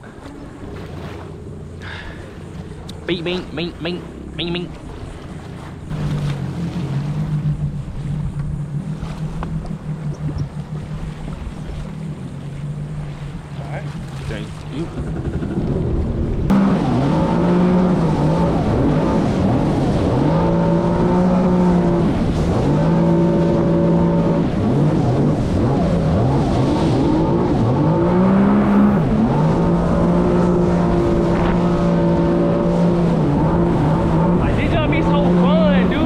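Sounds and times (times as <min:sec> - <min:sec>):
jet ski engine revving: 0:00.0 - 0:36.0.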